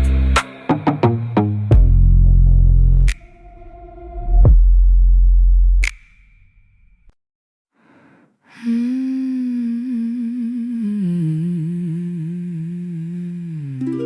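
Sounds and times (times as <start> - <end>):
wordless hummed vocal: 8.6 - 14.0.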